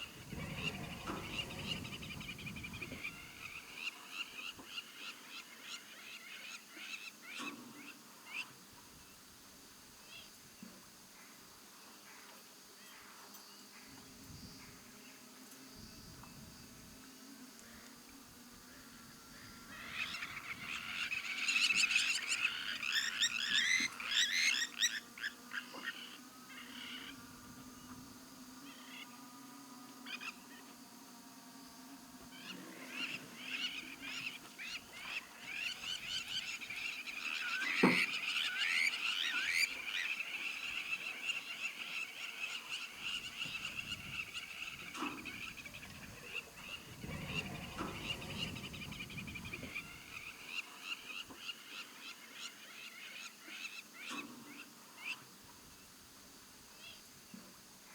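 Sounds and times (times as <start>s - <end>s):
birds chirping: 0.0s - 6.8s, 32.2s - 54.2s
frogs trilling: 0.0s - 7.5s, 17.7s - 27.8s, 32.3s - 55.2s.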